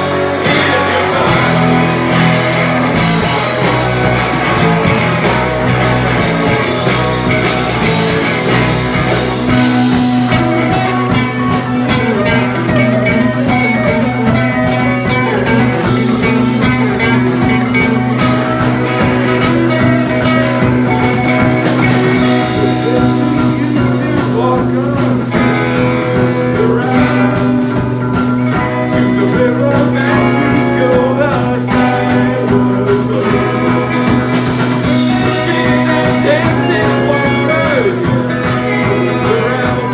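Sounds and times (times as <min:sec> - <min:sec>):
rock band playing instrumental: 0:00.0 - 0:39.9.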